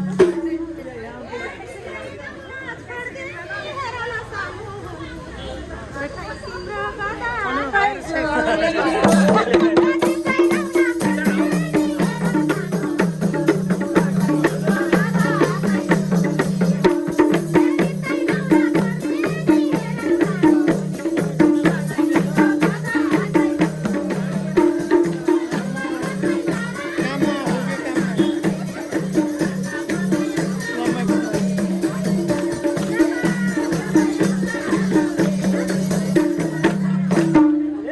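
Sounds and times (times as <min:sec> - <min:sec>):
jingling percussion: 0:00.0 - 0:01.0, 0:08.8 - 0:37.6.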